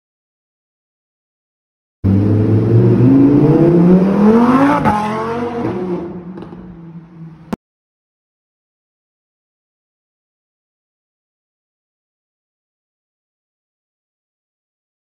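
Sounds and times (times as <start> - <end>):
car engine accelerating hard: 2.0 - 6.6.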